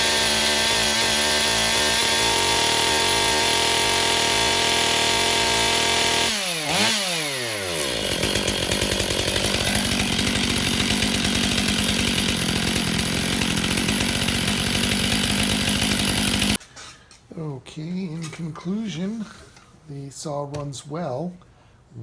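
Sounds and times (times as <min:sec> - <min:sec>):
chainsaw revving and idling: 0:00.0 - 0:16.6.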